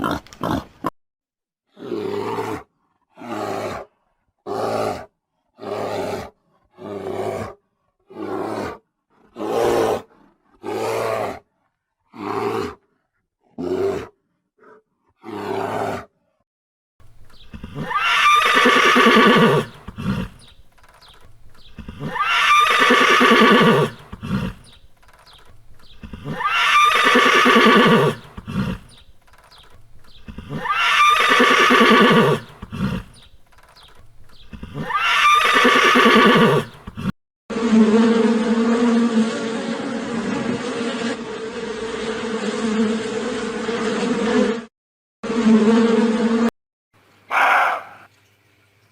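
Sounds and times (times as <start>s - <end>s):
horse neighing: 17.0s - 37.1s.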